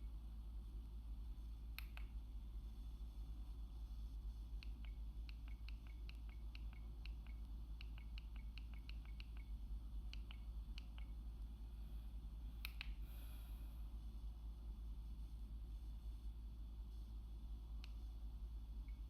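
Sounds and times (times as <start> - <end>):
steady low hum: 0.0 - 19.0
loud clicks: 1.8 - 2.2, 12.6 - 13.0.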